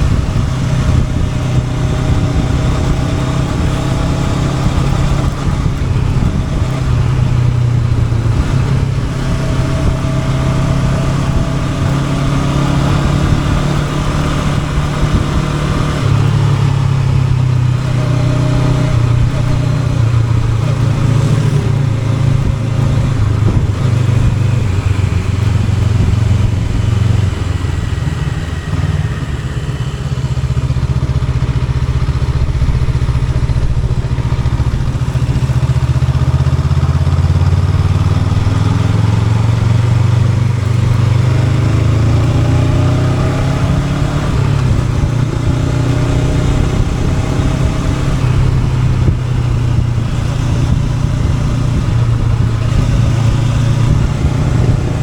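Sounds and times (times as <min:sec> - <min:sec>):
motorcycle engine running: 0:00.0 - 0:55.0
steady rush of noise: 0:20.5 - 0:36.5.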